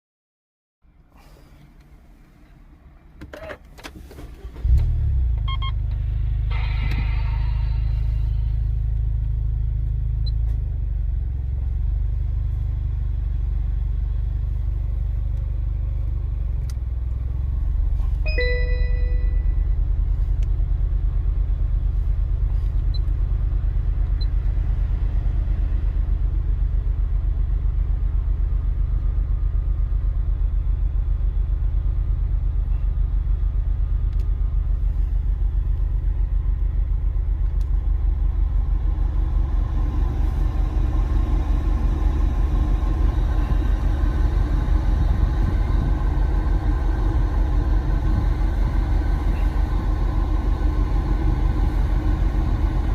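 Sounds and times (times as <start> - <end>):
car engine rumbling: 0.8 - 52.9
short electronic beep: 5.4 - 5.8, 18.3 - 19.8.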